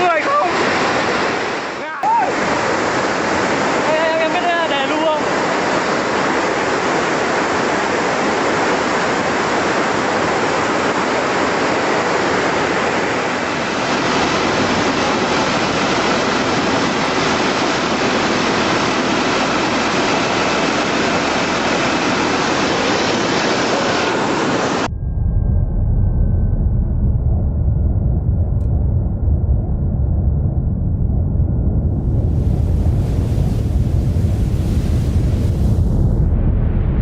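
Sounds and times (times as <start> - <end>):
fast-flowing water rushing: 0.0 - 24.9.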